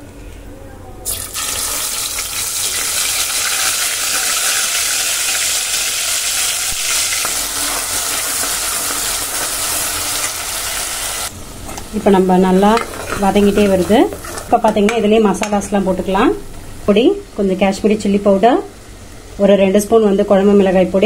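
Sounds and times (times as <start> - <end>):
paste sizzling in hot oil: 1.1 - 11.3.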